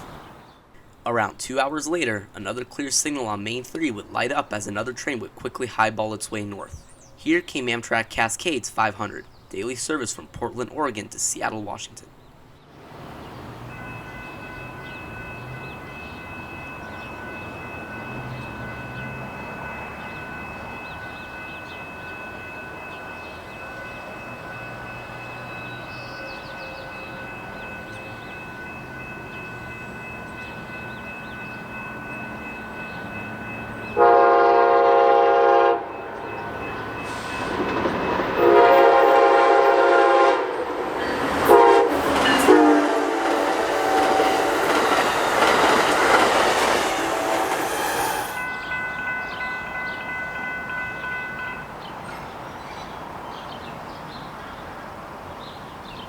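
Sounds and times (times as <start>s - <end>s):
train rumbling: 12.3s - 53.3s
train horn blasts: 33.9s - 36.4s, 38.4s - 40.7s, 41.4s - 45.3s, 46.6s - 48.5s.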